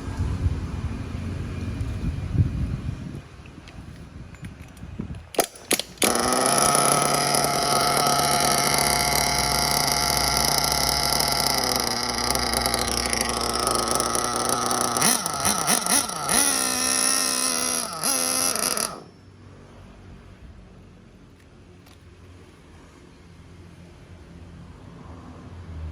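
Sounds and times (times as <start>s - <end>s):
small nitro engine revving: 5.4s - 19.2s.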